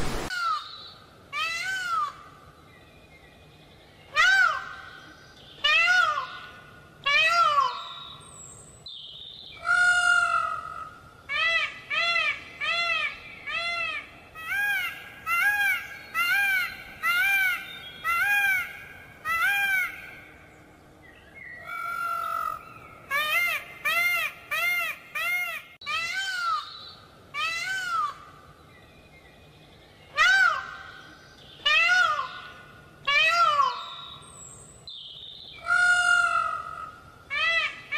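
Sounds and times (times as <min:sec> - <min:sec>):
peacock calling: 0:09.6 - 0:20.4, 0:21.6 - 0:28.6, 0:30.1 - 0:34.6, 0:35.6 - 0:37.9.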